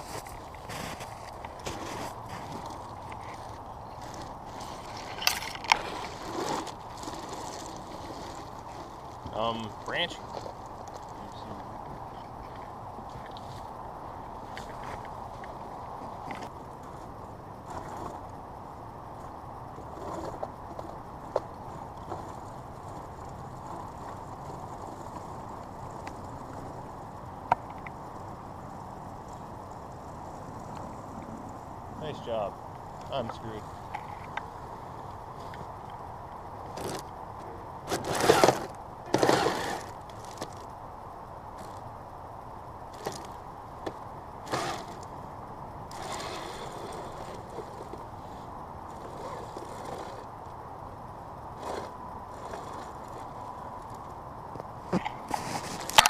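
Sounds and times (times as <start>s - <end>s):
tracks working through snow: 0.0s - 5.2s, 37.9s - 40.5s
toy snowcat motors and tracks: 0.0s - 11.9s, 12.5s - 30.5s, 32.0s - 40.8s, 41.5s - 42.0s, 42.8s - 45.2s, 45.8s - 56.0s
electric motor whine: 37.8s - 40.6s, 44.4s - 45.1s, 45.9s - 50.4s, 51.6s - 54.0s.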